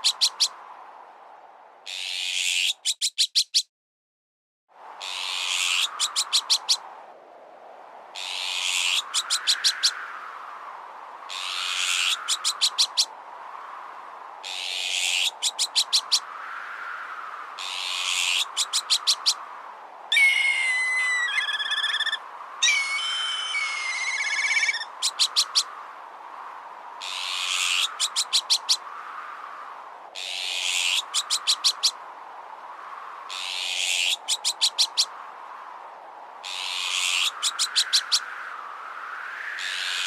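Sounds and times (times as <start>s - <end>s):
wind noise: 0.0s - 2.8s, 4.7s - 40.0s
harsh rasping bird alarm call: 1.9s - 3.6s, 20.1s - 25.7s
warbling gliding bird calls: 8.2s - 10.0s, 17.6s - 19.4s, 20.1s - 25.7s, 27.0s - 28.9s, 30.2s - 32.0s, 33.3s - 35.2s, 36.4s - 38.3s, 39.5s - 40.0s.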